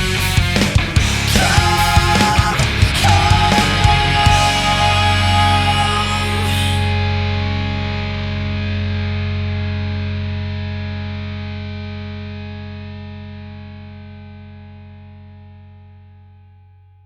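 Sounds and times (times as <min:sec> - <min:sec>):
drums: 0:00.0 - 0:07.8
distorted electric guitar chord ringing: 0:00.0 - 0:15.9.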